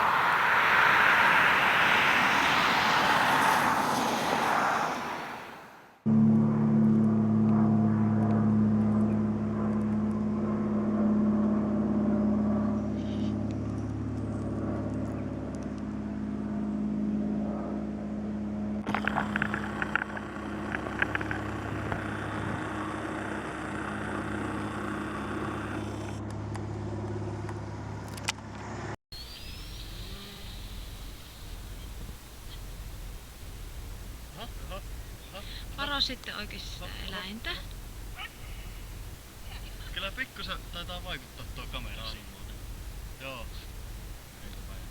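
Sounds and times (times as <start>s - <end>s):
model plane motor and propeller: 6.8s - 44.9s
crackles: 18.8s - 26.4s, 29.4s - 44.9s.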